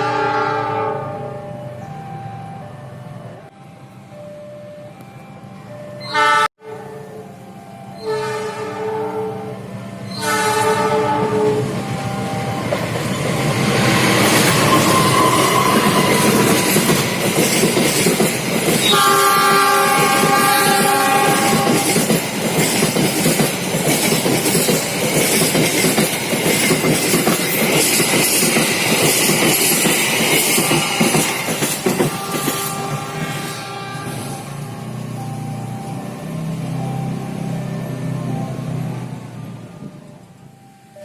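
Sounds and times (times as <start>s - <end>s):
train horn: 0.0s - 1.7s, 6.0s - 12.2s, 14.6s - 16.8s, 18.8s - 22.1s, 31.9s - 35.2s
train wheels clattering: 12.7s - 34.6s.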